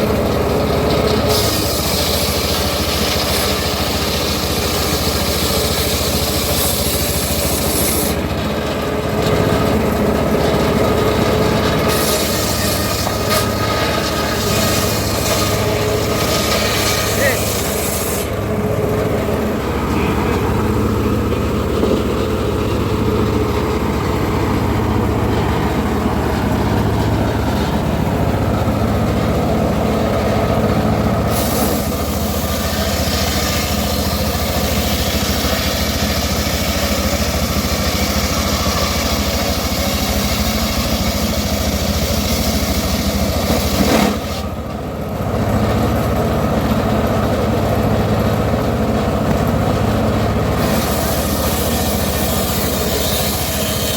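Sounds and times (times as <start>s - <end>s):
sawmill engine running: 0.0s - 53.9s
saw blade cutting wood hiss: 1.3s - 8.2s, 11.9s - 13.5s, 14.3s - 18.4s, 31.3s - 44.4s, 50.6s - 53.9s.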